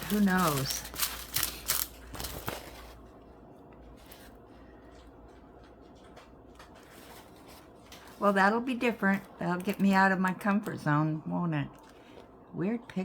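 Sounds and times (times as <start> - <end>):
plastic packets crinkling: 0.0 - 3.1.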